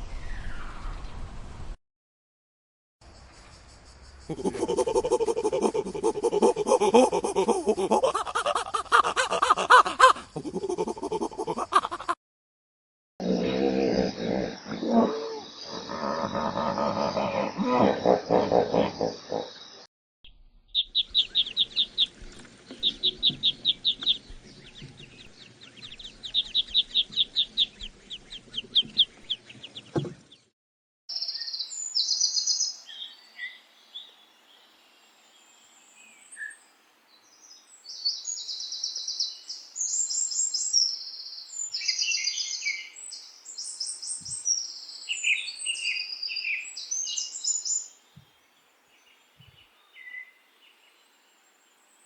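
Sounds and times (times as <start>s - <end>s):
small birds chirping: 20.6s - 30.5s, 31.1s - 34.8s, 35.9s - 52.0s.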